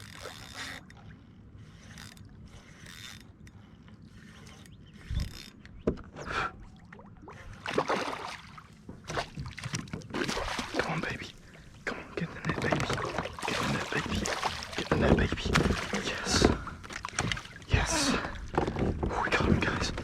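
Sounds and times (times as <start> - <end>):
fishing reel whirring and clicking: 1.8 - 3.6
water splashing: 6.5 - 20.0
thumps against a kayak: 12.4 - 13.5, 14.7 - 20.0.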